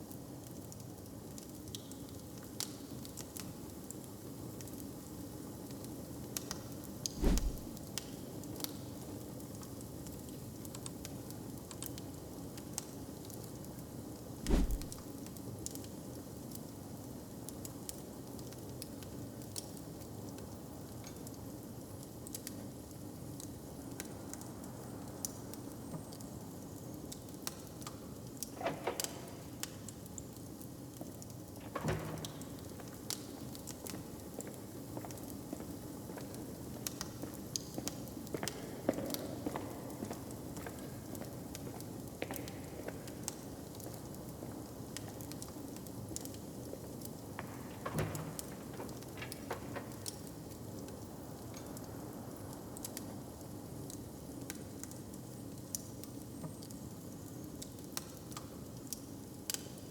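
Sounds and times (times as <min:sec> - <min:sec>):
dull thump: 0:07.2 - 0:07.8, 0:14.4 - 0:15.0
log fire crackling: 0:07.2 - 0:07.8, 0:14.4 - 0:15.2, 0:43.1 - 0:55.8.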